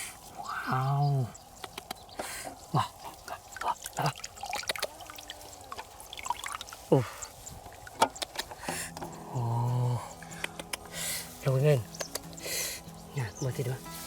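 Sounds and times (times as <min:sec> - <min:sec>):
water dripping and trickling: 0:00.1 - 0:13.7
small clicks and splashes: 0:03.1 - 0:06.8.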